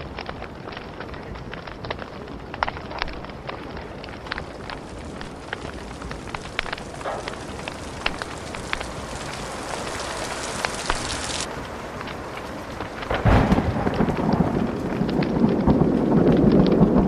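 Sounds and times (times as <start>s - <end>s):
rain hissing: 0.0s - 17.0s
wood fire crackling and popping: 0.0s - 17.0s
loud low thunder rumble: 13.1s - 17.0s.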